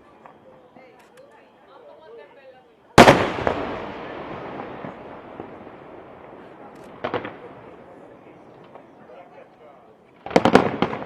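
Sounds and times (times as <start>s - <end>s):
crackling firework reports: 2.9s - 11.0s
firework shell booming: 3.0s - 8.1s, 10.2s - 11.0s.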